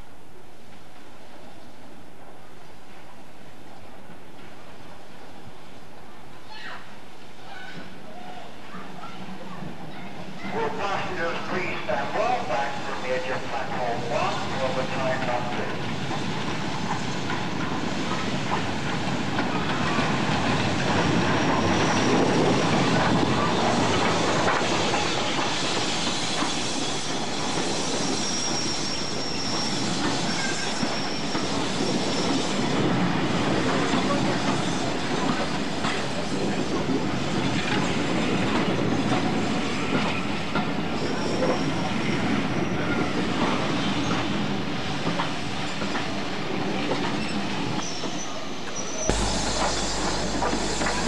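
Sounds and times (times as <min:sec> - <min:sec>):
train rumbling slowly: 0:00.0 - 0:51.0
high wheel squeal: 0:25.7 - 0:32.7.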